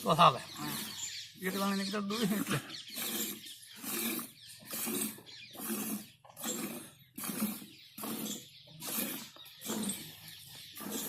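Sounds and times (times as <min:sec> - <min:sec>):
milk squirting into a pail: 0:02.4 - 0:10.2.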